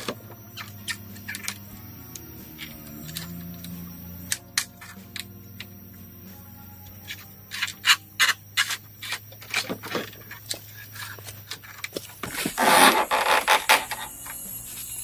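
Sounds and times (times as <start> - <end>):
loud scrape on bamboo: 12.2 - 14.1.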